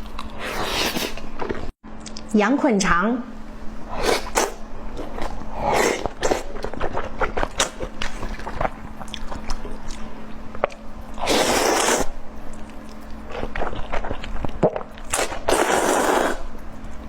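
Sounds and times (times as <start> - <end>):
chewing and biting: 4.1 - 10.8, 11.9 - 16.2.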